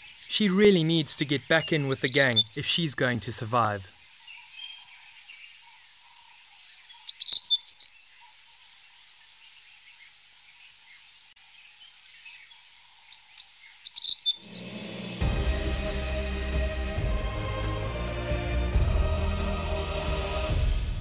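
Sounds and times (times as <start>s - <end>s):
small birds chirping: 0.0s - 14.8s.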